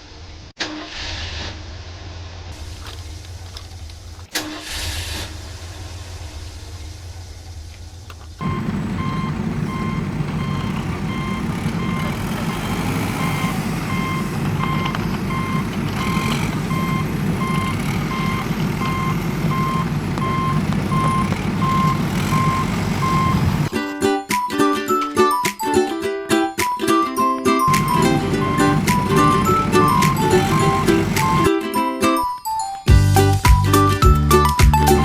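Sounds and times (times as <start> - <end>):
engine rumbling: 8.1 - 23.7, 27.7 - 31.5
truck reversing alarm beeping: 8.4 - 23.7, 27.7 - 31.5.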